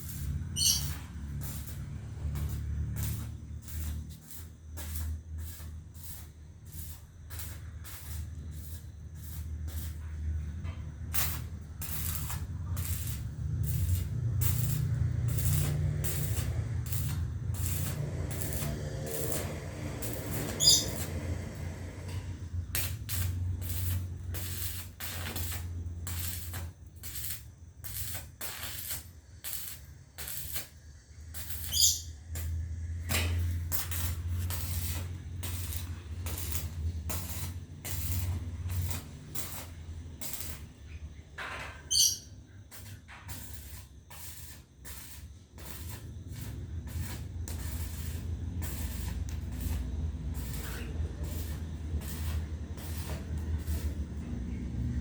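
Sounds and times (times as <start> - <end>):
small bird chirping: 0.5 - 1.0, 20.5 - 21.0, 31.6 - 32.2, 41.9 - 42.4.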